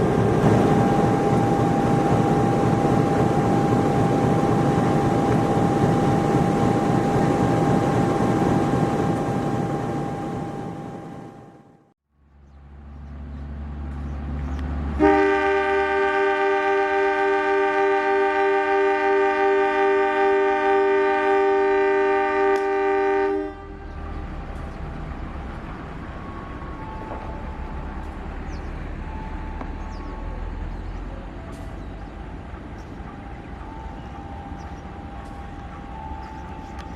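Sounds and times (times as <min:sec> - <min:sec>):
locomotive engine rumble: 0:00.0 - 0:18.2, 0:19.3 - 0:36.9
locomotive air horn: 0:15.0 - 0:24.0.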